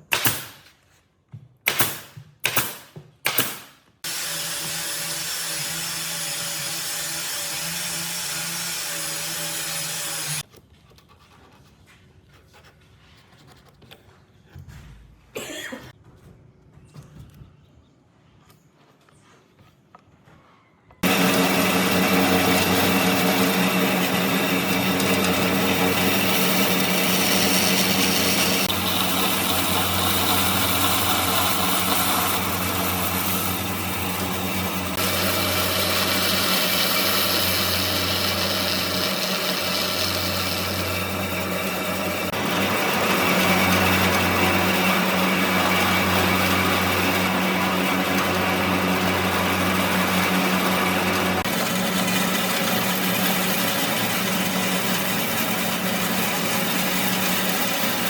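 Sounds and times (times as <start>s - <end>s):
electric power tool running: 4.0s - 10.4s, 21.0s - 58.0s
hissing cutting or sanding noise: 21.0s - 55.9s.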